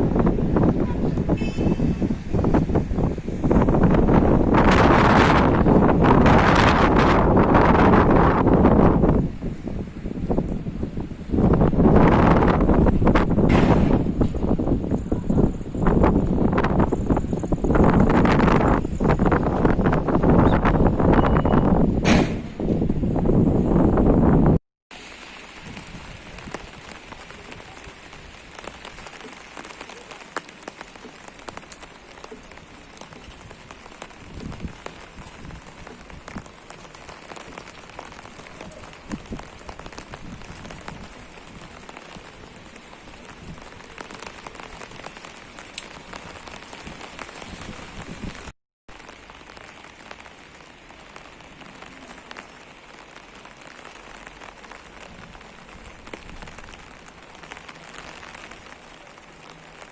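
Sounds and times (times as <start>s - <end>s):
steady rain hiss: 0.0s - 21.8s, 23.2s - 59.9s
raindrops tapping on surfaces: 9.9s - 15.0s, 24.9s - 59.9s.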